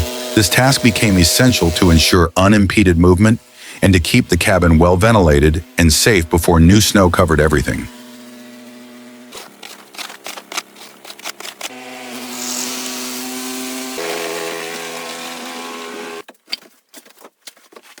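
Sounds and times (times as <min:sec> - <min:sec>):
snow blower motor running: 0:00.0 - 0:16.2.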